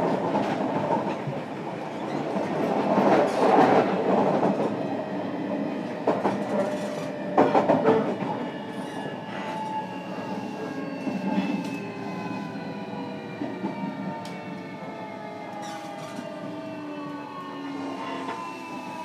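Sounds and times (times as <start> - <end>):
train wheel-on-rail rumble: 0.0 - 19.0
clacks over rail joints: 6.0 - 8.4.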